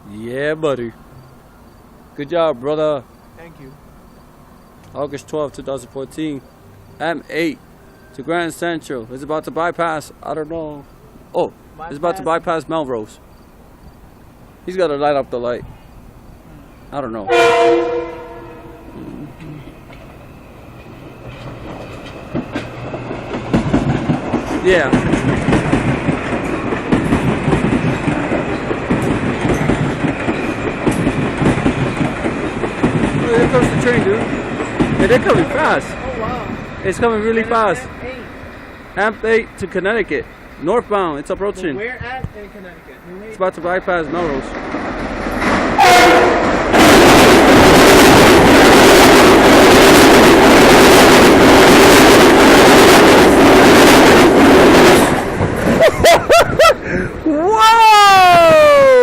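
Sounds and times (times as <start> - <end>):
train wheels rumbling on rails: 0.0 - 59.0
wheels clattering over track: 18.2 - 38.3, 43.7 - 56.7.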